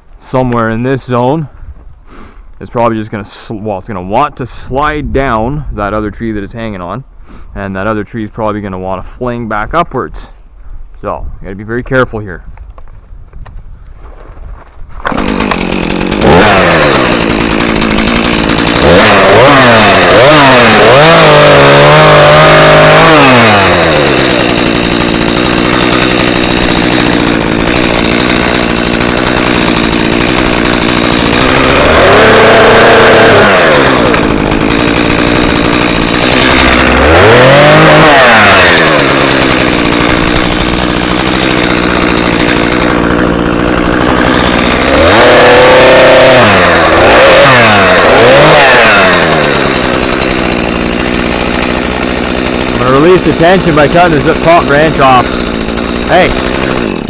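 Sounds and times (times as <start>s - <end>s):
chainsaw cutting a tree: 14.9s - 57.0s.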